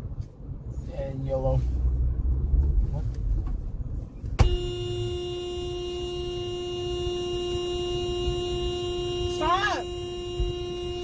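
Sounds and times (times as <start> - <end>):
road rumble: 0.0 - 11.0
car horn blaring: 4.4 - 11.0.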